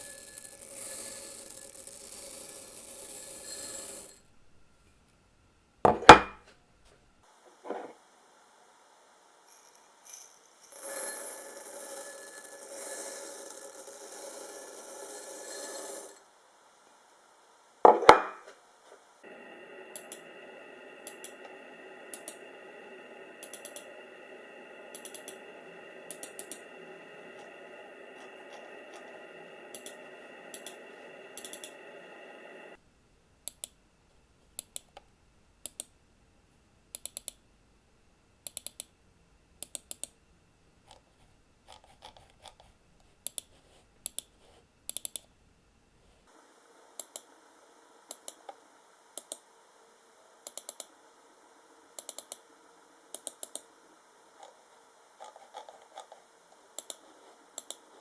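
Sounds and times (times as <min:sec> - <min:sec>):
camera mechanism whirring: 0:21.0 - 0:31.8.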